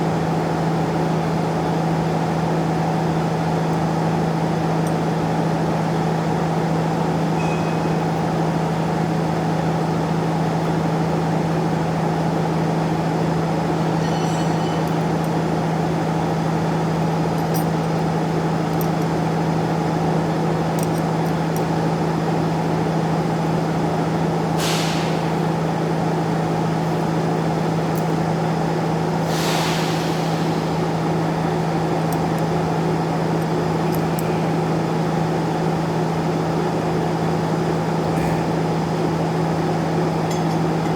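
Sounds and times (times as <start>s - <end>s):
short hisses: 24.6s - 25.4s, 29.2s - 31.4s.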